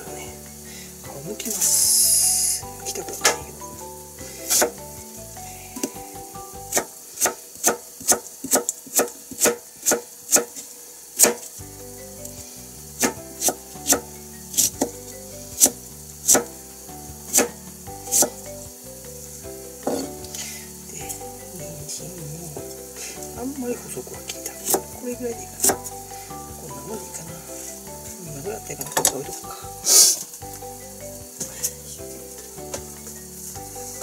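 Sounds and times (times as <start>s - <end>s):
knife chopping on plastic board: 6.7s - 10.6s, 11.2s - 11.5s, 16.3s - 16.5s.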